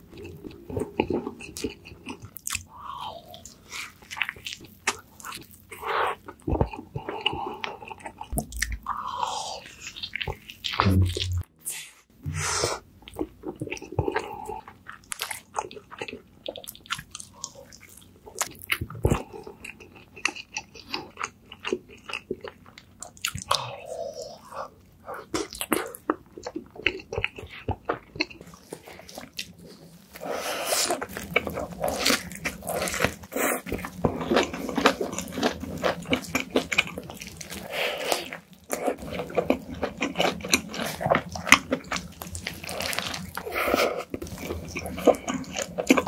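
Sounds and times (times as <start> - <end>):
wet sticky chewing: 0.1 - 11.4, 24.4 - 46.0
burgers being bitten crunching: 27.0 - 46.0.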